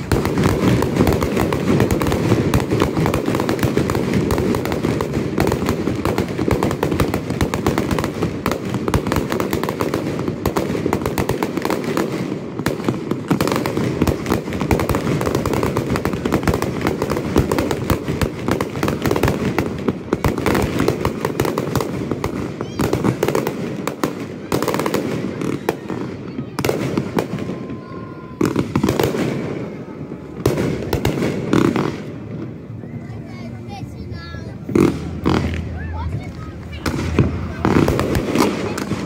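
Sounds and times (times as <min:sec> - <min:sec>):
fireworks crackling: 0:00.0 - 0:39.0.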